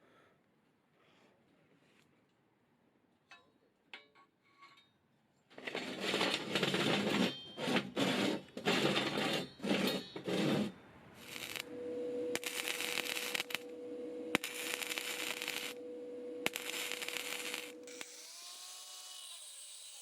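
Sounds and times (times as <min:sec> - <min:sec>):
loud scraping strokes: 0:05.6 - 0:18.4.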